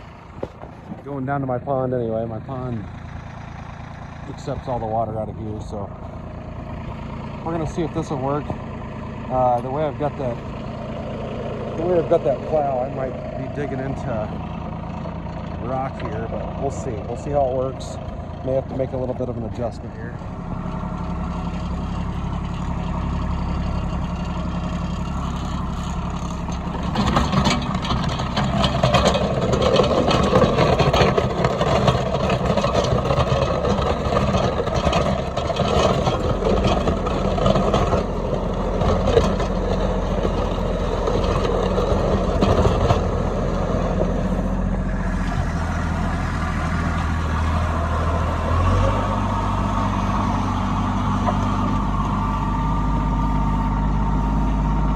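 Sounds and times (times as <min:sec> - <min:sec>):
tractor diesel engine running: 0:00.0 - 0:54.9
rattling: 0:09.5 - 0:44.5.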